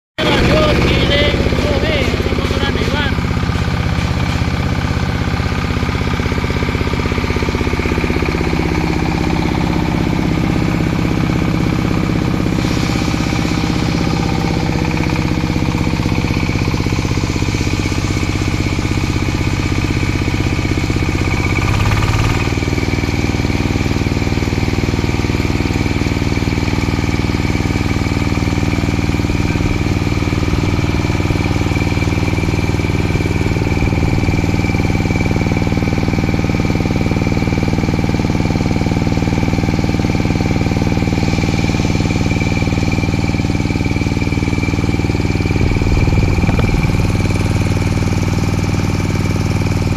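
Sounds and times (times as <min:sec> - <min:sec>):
high machine whine: 0:00.2 - 0:23.3, 0:27.6 - 0:36.6, 0:41.1 - 0:49.9
grinding machine engine running: 0:00.2 - 0:49.9.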